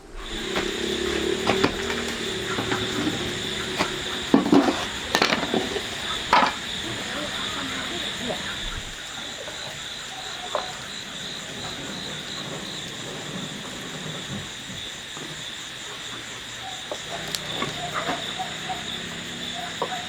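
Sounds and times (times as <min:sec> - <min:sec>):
insects chirping: 0:00.0 - 0:20.0
knocks: 0:00.2 - 0:08.2.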